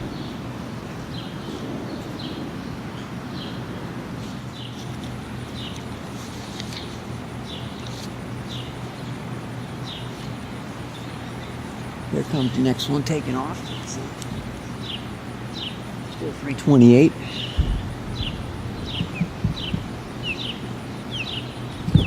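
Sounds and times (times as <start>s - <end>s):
distant jet aircraft rumble: 0.0s - 22.0s
bird chirping: 17.2s - 22.0s.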